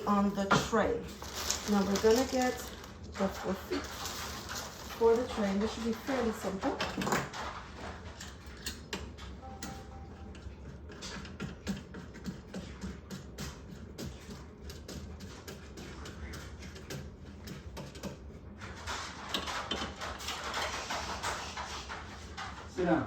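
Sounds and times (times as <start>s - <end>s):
rustling: 1.1s - 5.9s.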